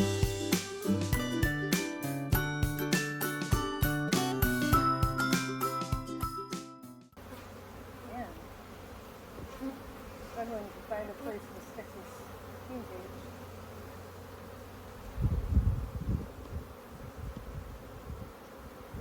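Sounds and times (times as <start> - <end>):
honeybees buzzing: 7.2 - 19.0.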